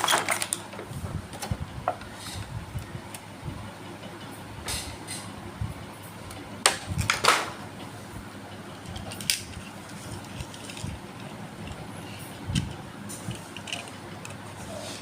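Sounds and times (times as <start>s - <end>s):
toy cars clicking: 13.3s - 14.4s.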